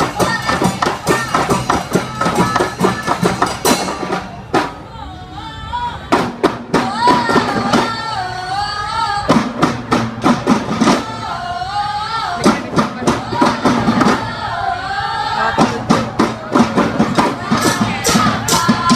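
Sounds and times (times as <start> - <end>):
drums playing fast rhythm: 0.0 - 4.9, 12.3 - 14.4, 15.4 - 18.9.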